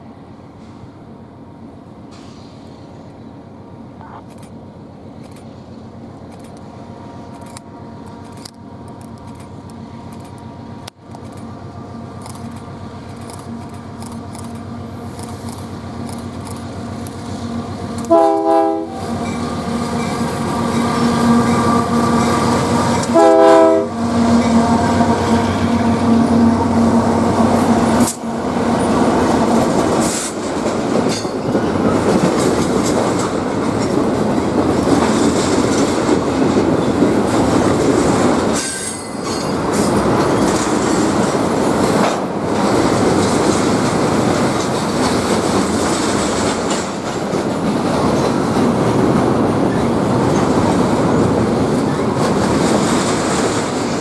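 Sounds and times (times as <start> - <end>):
train rumbling past: 0.0 - 54.0
train horn chord: 17.4 - 29.1
wheels clattering over rail joints: 19.1 - 54.0.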